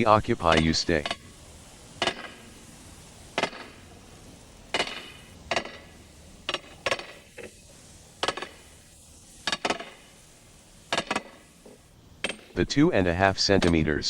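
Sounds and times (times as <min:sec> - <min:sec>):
hammers striking iron ring: 0:00.5 - 0:01.2, 0:02.0 - 0:02.4, 0:03.4 - 0:03.8, 0:04.7 - 0:05.9, 0:10.9 - 0:11.5, 0:12.2 - 0:12.6.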